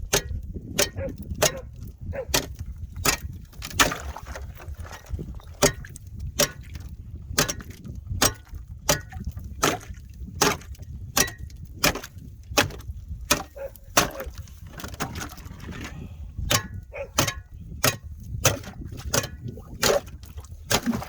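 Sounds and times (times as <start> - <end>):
wind rumbling on microphone: 0.0 - 21.0
ice being chipped: 9.6 - 15.7, 16.5 - 21.0.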